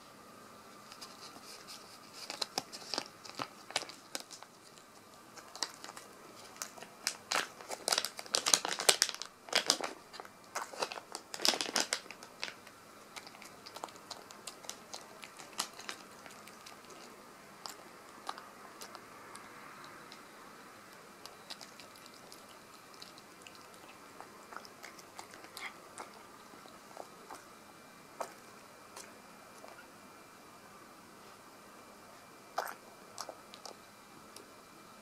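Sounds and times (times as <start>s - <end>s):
plastic packet crinkling and tearing: 2.1s - 20.2s, 21.2s - 27.4s.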